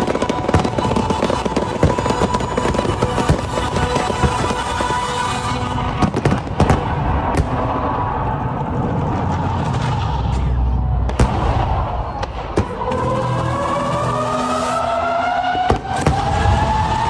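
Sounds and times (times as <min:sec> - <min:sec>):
fireworks sharp cracks: 0:00.0 - 0:13.2, 0:15.5 - 0:16.9
loud firework reports: 0:00.0 - 0:17.0
low rumble of shells bursting: 0:10.9 - 0:12.7.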